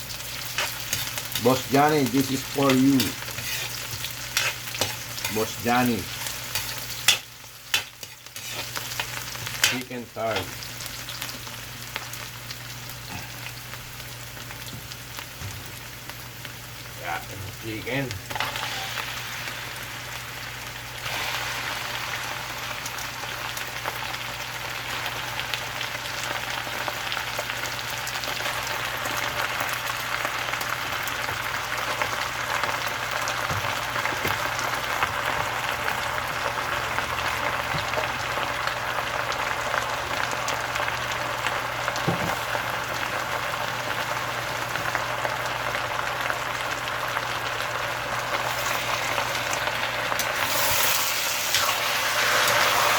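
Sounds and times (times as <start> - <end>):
chicken sizzling in a pan: 0.0 - 52.9.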